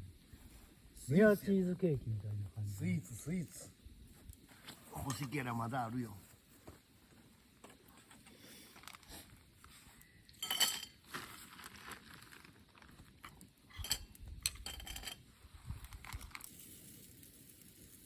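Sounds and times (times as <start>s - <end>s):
dishes and utensils clinking: 10.4s - 11.0s.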